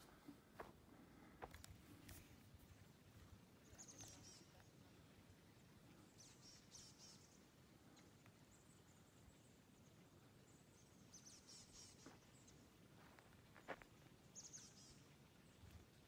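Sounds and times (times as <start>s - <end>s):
faint high-pitched bird chirps: 3.6s - 4.7s, 14.4s - 15.2s.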